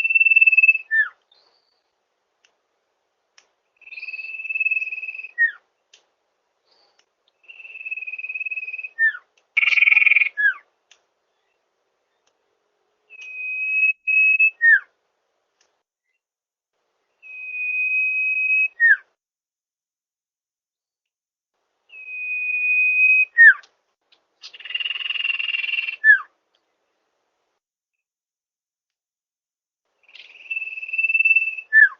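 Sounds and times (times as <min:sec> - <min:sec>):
bird whistling song: 0:00.0 - 0:01.9, 0:03.8 - 0:05.6, 0:06.7 - 0:10.6, 0:13.0 - 0:15.0, 0:17.1 - 0:19.2, 0:21.9 - 0:23.7, 0:24.4 - 0:26.3, 0:30.0 - 0:31.9.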